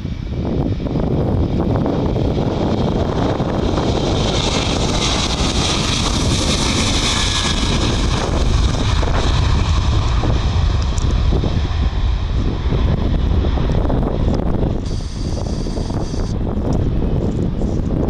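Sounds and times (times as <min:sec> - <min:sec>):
jet airliner engines running: 0:00.0 - 0:18.0
wind buffeting microphone: 0:00.0 - 0:18.0.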